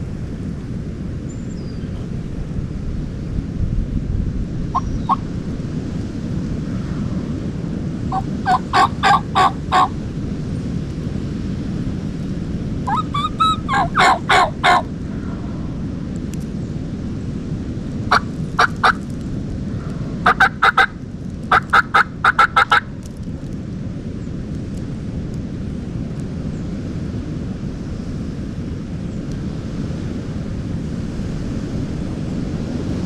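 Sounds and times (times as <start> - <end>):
low wind rumble: 0.0 - 33.0
turkey gobbling: 4.8 - 5.2, 8.1 - 9.9, 12.9 - 14.9, 18.1 - 19.0, 20.2 - 22.9
turkey yelping: 4.8 - 5.2, 8.1 - 9.9, 12.9 - 14.9, 18.1 - 19.0, 20.2 - 22.9.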